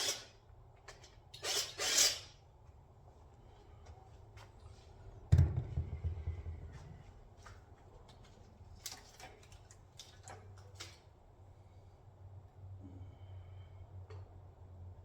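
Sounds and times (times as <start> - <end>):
loud thud with low rumble: 5.3 - 7.0.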